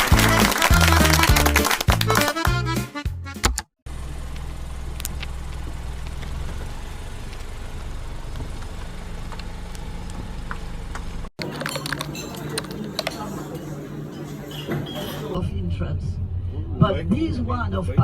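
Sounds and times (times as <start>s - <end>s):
engine humming: 3.9s - 14.2s.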